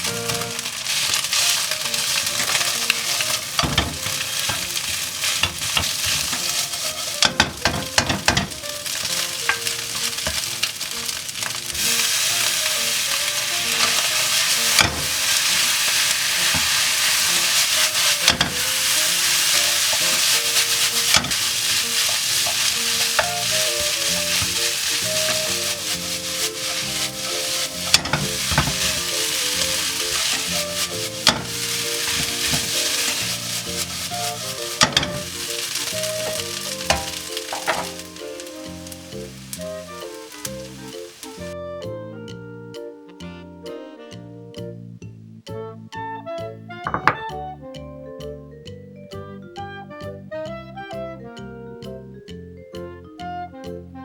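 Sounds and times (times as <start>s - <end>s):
food sizzling in a frying pan: 0.0s - 41.6s
utensil scraping a pan: 0.0s - 41.6s.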